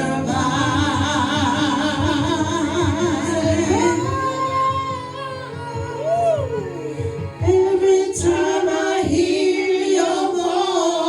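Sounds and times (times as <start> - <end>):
gospel group singing: 0.0 - 11.0
musical backing: 0.0 - 11.0.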